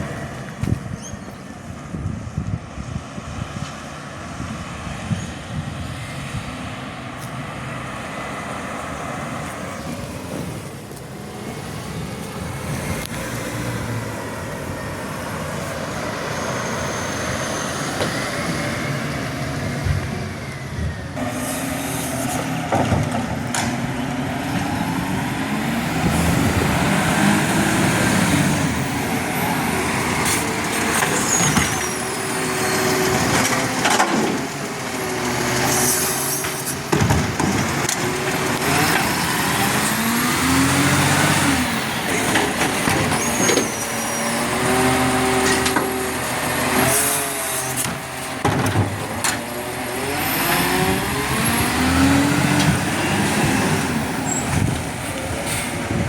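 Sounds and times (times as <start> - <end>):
garbage truck engine revving: 11.2 - 56.0.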